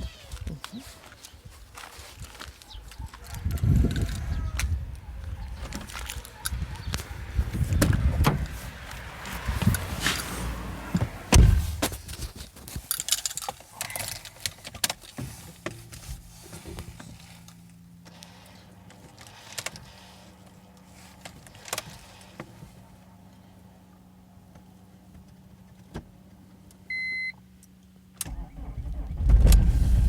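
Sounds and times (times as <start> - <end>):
heavy thump: 10.9 - 12.1
car keys jangling: 12.8 - 15.1.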